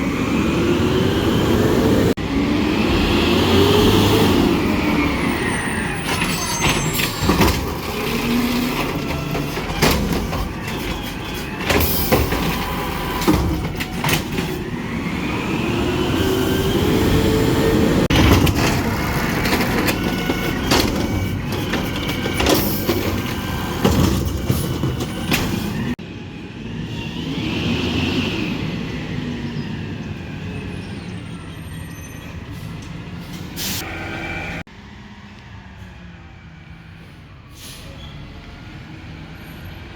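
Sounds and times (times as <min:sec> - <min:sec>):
garbage truck engine running: 0:00.5 - 0:26.0
metal clanks and knocks: 0:06.2 - 0:14.6, 0:18.1 - 0:26.0.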